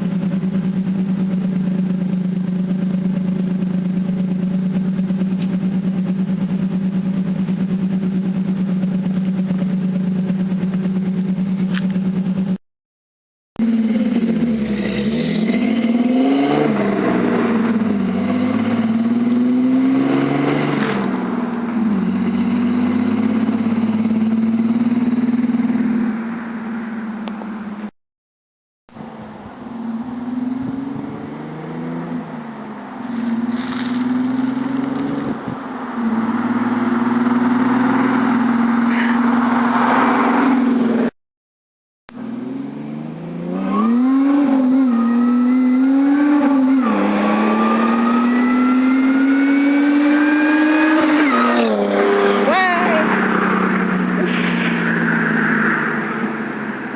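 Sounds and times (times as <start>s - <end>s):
engine exhaust running: 0.0s - 12.6s, 28.9s - 39.8s
truck engine revving: 13.6s - 26.2s, 29.0s - 41.2s, 42.1s - 56.9s.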